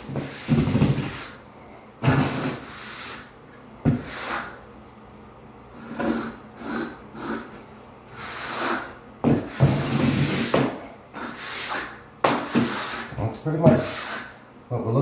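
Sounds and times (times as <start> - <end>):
trowel scraping mortar: 2.0 - 3.3.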